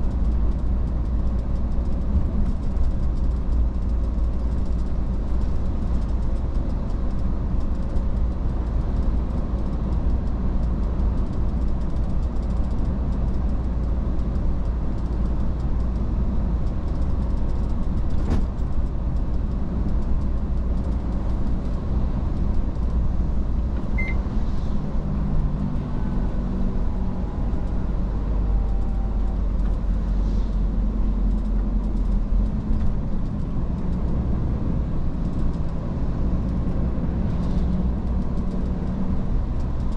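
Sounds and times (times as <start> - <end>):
truck engine and road noise: 0.0 - 39.9
brief high beep: 24.0 - 24.2.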